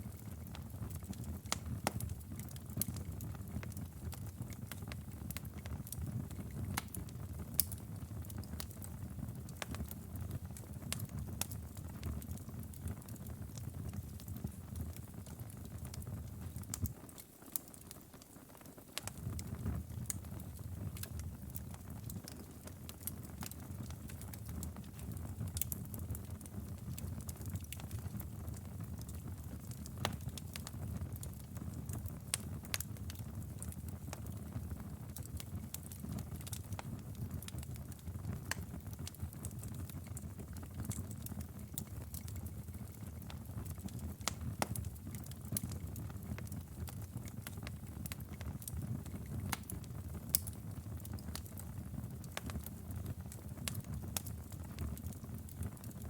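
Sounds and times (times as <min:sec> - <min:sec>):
fire crackling and popping: 0:00.0 - 0:56.0
fire rumbling: 0:19.0 - 0:56.0.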